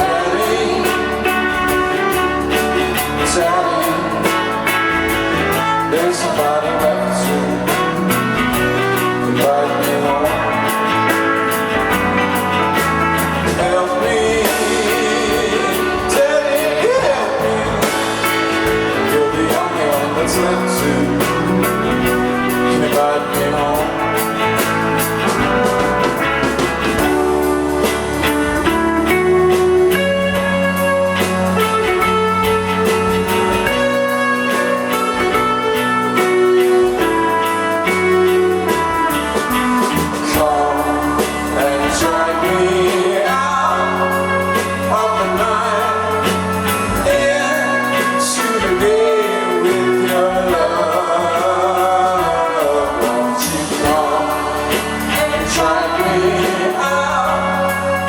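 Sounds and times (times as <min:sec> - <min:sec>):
bass guitar: 0:00.0 - 0:58.0
drums: 0:00.0 - 0:58.0
electric guitars: 0:00.0 - 0:58.0
wavering lead guitar lines: 0:00.0 - 0:58.0.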